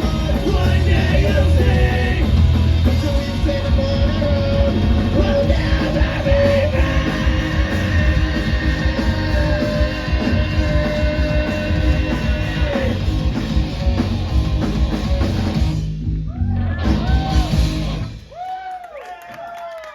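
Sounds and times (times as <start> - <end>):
person yelling singing: 0.0 - 13.1
distorted electric guitars: 0.0 - 18.3
drums: 0.0 - 19.4.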